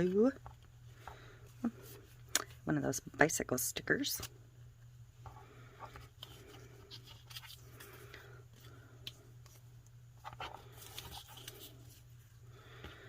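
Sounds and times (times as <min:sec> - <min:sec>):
paper rustling: 0:10.2 - 0:12.1.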